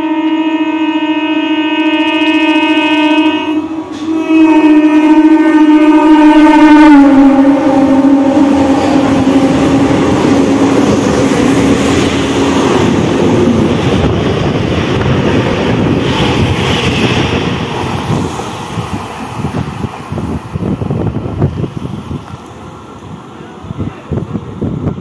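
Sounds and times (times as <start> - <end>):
train horn: 0.0 - 12.9
passing train rush and rattle: 0.0 - 25.0.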